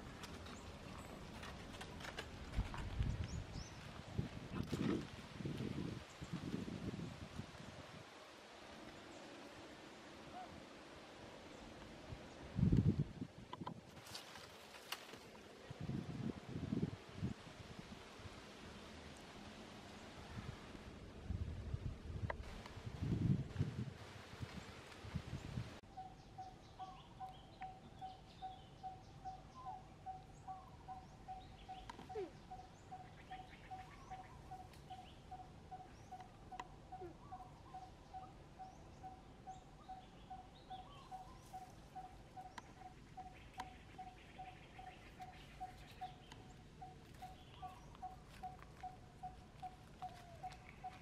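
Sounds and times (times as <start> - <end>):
faint bird chirps: 25.8 - 51.0.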